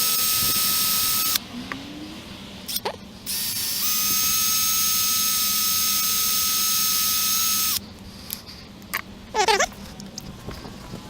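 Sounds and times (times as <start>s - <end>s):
rotary tool high-pitched whine: 0.0s - 1.4s, 2.7s - 7.8s.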